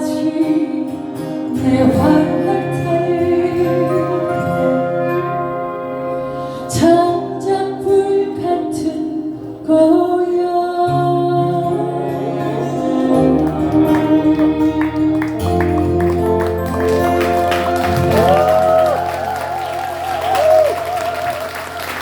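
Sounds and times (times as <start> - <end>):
person singing: 0.0 - 21.7
instrumental accompaniment: 1.5 - 7.7, 11.5 - 22.0.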